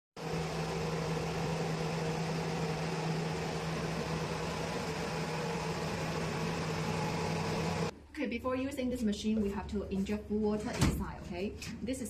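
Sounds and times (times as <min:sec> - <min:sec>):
steady mechanical hum: 0:00.2 - 0:08.0.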